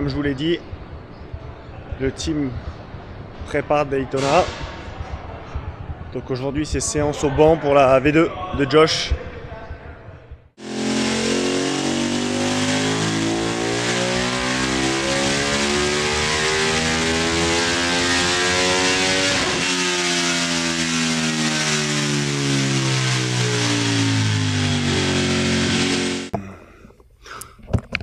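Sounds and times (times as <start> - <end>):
motorcycle engine revving: 10.6 - 26.4.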